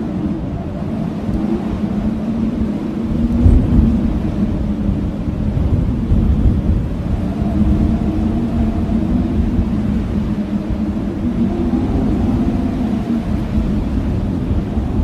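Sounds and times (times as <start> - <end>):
blizzard wind howling: 0.0 - 15.0.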